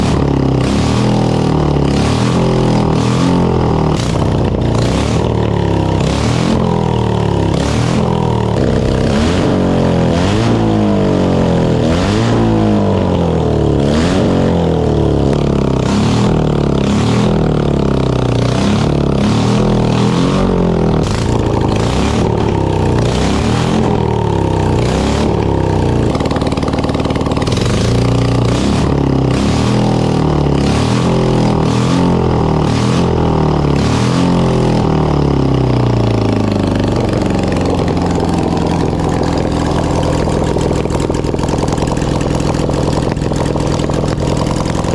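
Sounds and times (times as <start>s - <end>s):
motorcycle engine revving: 0.0s - 44.9s
exhaust cracks and pops: 20.4s - 31.3s, 34.6s - 44.9s.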